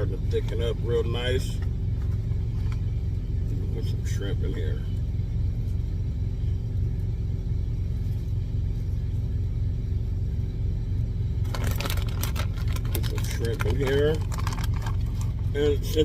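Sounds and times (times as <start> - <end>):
truck engine idling: 0.0 - 16.0
crackling and clattering: 11.4 - 15.4.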